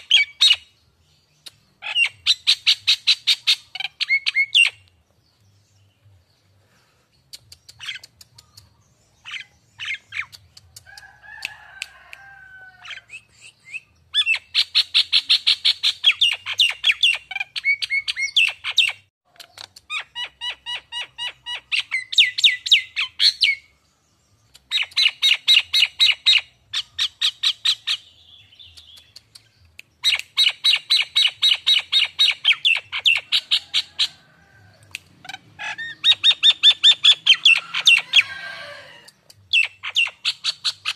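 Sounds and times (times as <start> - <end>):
bird rapid chattering: 7.3 - 11.0, 28.6 - 34.2, 35.3 - 38.1.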